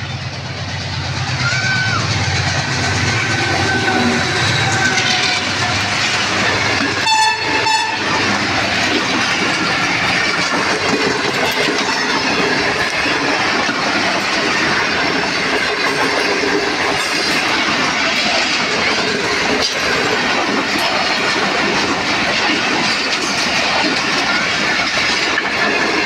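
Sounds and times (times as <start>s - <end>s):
train wheels clattering: 0.0s - 26.0s
high train horn note: 3.1s - 5.6s, 6.9s - 8.2s.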